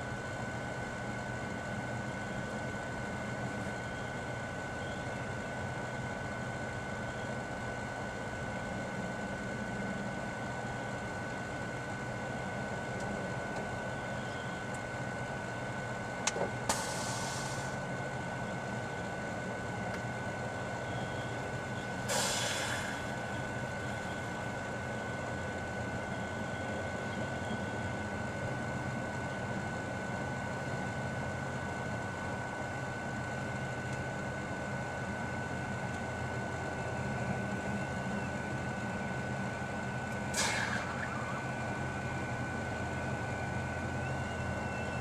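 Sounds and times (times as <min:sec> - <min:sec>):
microwave oven humming: 0:00.0 - 0:45.0
constant high tone: 0:39.9 - 0:45.0.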